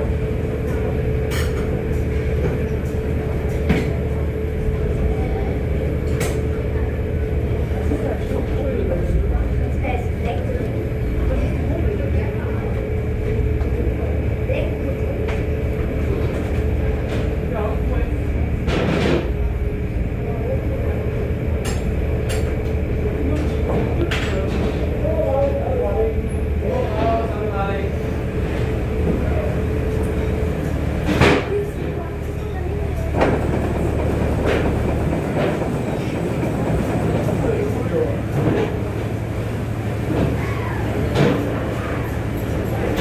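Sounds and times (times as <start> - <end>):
steam engine rumbling: 0.0 - 43.0
steam engine running: 26.1 - 43.0.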